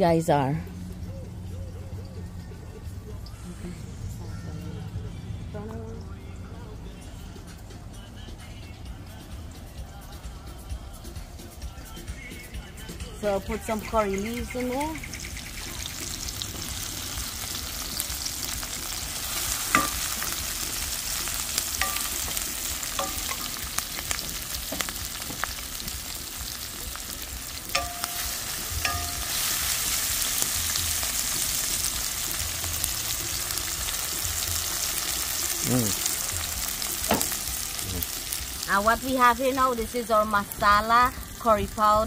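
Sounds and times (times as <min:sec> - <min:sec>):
vegetables sizzling in hot oil: 0:14.0 - 0:42.0
wooden spoon knocking on pan: 0:19.7 - 0:20.2, 0:21.8 - 0:25.6, 0:27.7 - 0:29.4, 0:37.1 - 0:37.4.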